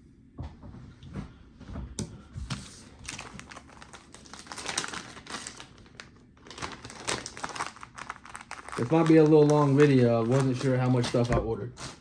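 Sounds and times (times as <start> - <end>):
plastic packaging crinkling: 2.8 - 12.0.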